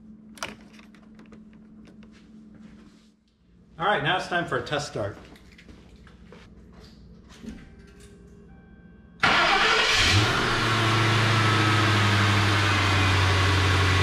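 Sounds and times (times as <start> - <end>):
starter motor cranking: 9.2 - 10.5
car engine revving and idling: 9.2 - 14.0.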